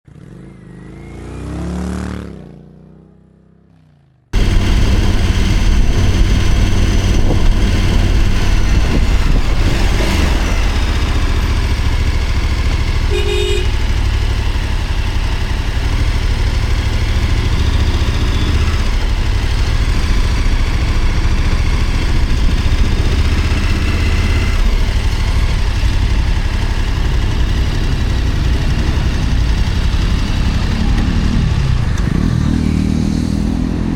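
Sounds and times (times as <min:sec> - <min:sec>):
whoosh with falling pitch: 0:04.4 - 0:12.1
wind noise: 0:04.4 - 0:12.3, 0:20.8 - 0:25.4
motorcycle engine running: 0:04.4 - 0:33.9.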